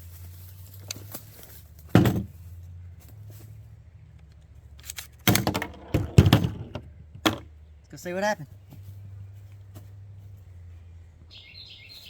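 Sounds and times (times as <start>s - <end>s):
loud clattering knocks: 1.9s - 2.3s, 5.3s - 7.5s.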